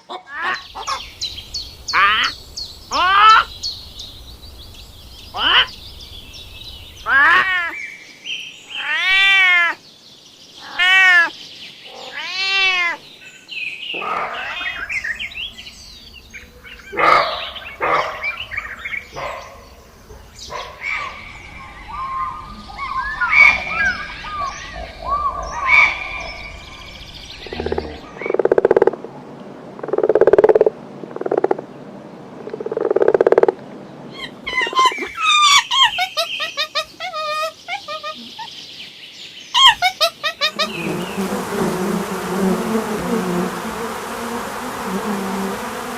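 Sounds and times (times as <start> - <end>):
drawn-out rising and falling animal calls: 0.1 - 4.5, 5.3 - 7.8, 16.0 - 29.0, 32.6 - 38.6, 39.6 - 45.9
animal chirps and squeaks: 34.2 - 38.5.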